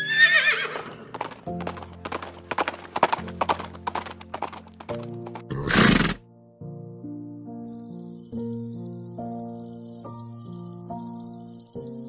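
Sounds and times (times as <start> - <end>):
horse whinnying: 0.0 - 1.2, 5.5 - 6.2
background music: 0.0 - 12.0
hoof clops: 0.7 - 6.2
horse snort: 5.4 - 6.2.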